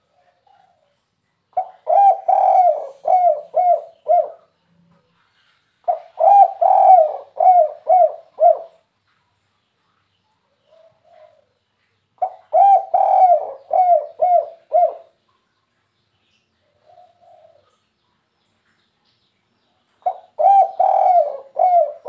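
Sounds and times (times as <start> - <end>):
dove cooing: 1.6 - 4.6, 5.8 - 8.8, 10.7 - 11.6, 12.2 - 15.2, 16.8 - 17.8, 20.0 - 22.0.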